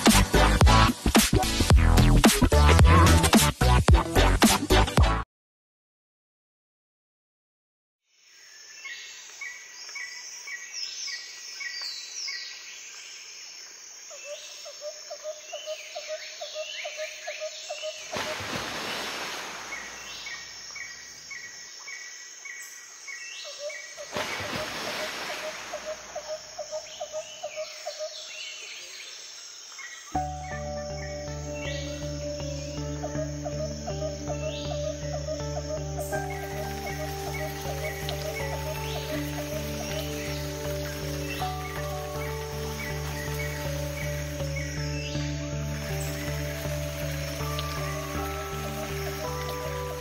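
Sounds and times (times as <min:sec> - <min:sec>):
music: 0:00.0 - 0:05.2, 0:30.2 - 0:50.0
birds chirping and singing: 0:25.7 - 0:50.0.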